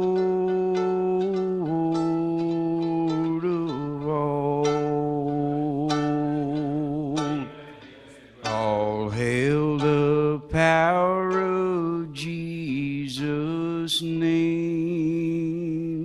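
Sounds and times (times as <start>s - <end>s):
man singing a hymn: 0.0s - 7.8s, 8.4s - 16.0s.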